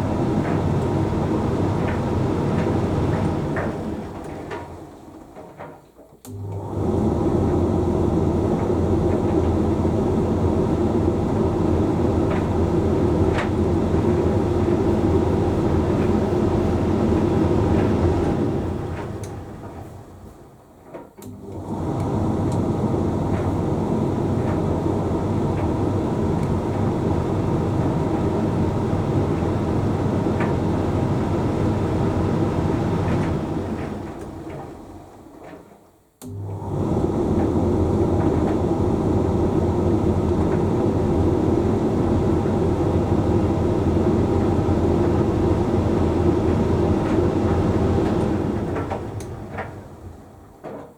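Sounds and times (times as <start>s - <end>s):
tumble dryer motor hum: 0.0s - 5.6s, 6.2s - 50.9s.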